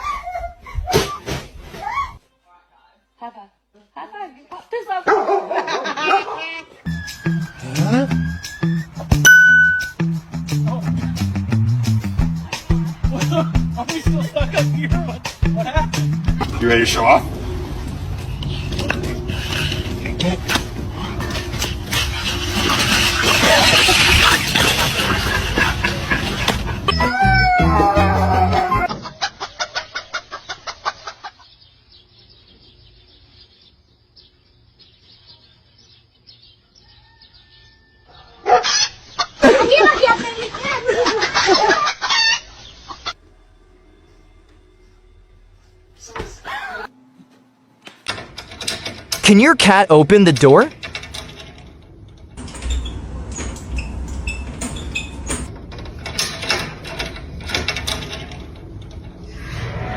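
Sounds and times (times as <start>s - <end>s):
door squeaks: 52.4s - 55.5s.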